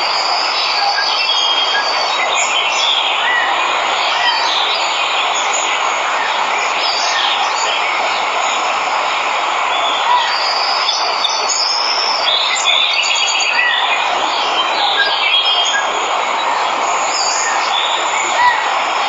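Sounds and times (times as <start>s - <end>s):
waterfall rushing: 0.0s - 19.0s
birds chirping and trilling: 9.7s - 19.0s.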